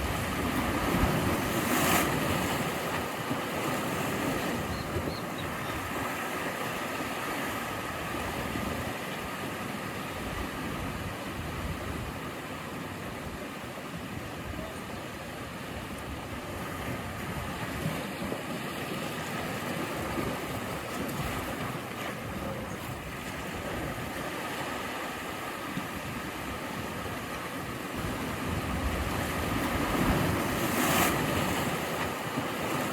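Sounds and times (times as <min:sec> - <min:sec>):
sea waves breaking: 0:00.0 - 0:32.9.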